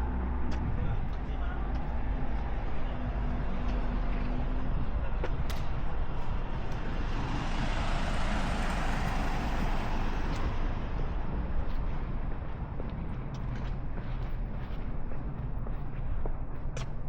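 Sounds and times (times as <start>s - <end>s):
road traffic rumbling: 0.0s - 13.6s
vehicle passing: 6.2s - 12.6s.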